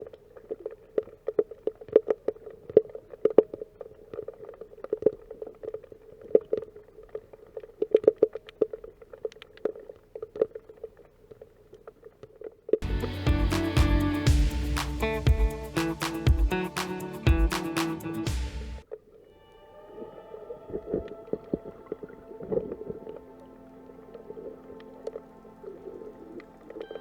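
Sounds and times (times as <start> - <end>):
ringing tone: 19.3 - 27.0.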